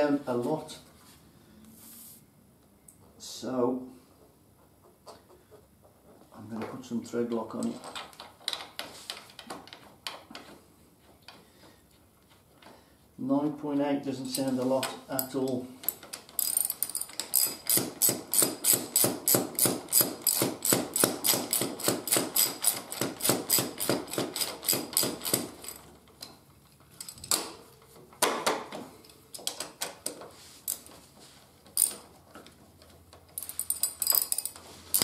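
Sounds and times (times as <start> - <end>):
ratchet wrench clicking: 15.9 - 25.8, 33.4 - 35.0.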